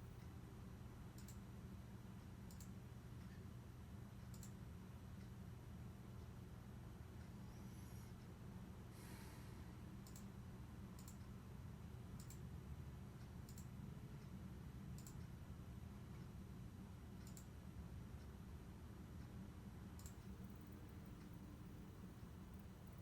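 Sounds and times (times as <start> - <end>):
steady low hum: 0.0 - 23.0
faint sharp ticks: 1.2 - 1.4, 2.5 - 3.4, 4.2 - 4.6, 10.0 - 10.3, 11.0 - 11.3, 12.2 - 12.4, 13.5 - 13.7, 15.0 - 15.3, 17.2 - 17.5, 20.0 - 20.6.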